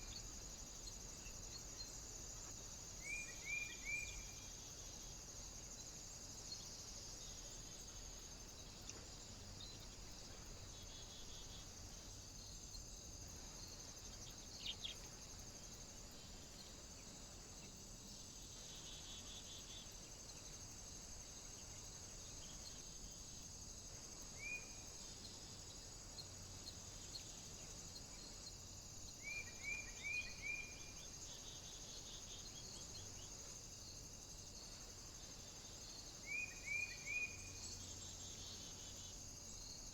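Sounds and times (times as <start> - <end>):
steady high hiss: 0.0 - 39.9
small bird chirping: 14.0 - 15.4.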